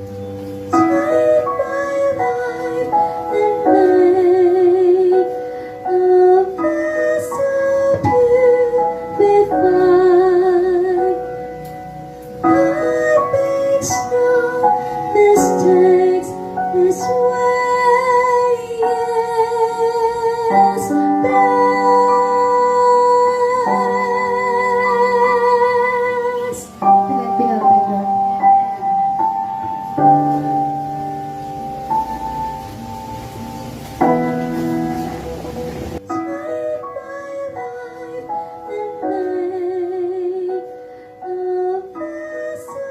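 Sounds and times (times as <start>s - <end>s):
piano accompaniment: 0.0s - 42.9s
woman singing a hymn: 0.7s - 11.4s, 12.4s - 28.4s, 36.0s - 42.9s.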